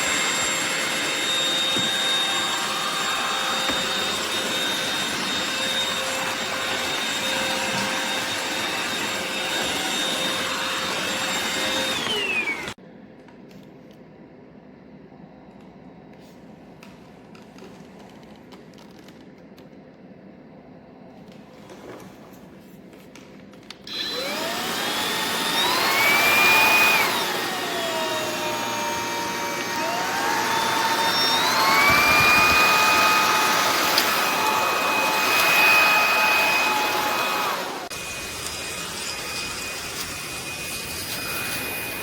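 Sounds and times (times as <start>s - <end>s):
cordless vacuum whining: 0.0s - 12.8s, 23.8s - 42.0s
faint clicks and handling noise: 15.5s - 20.1s.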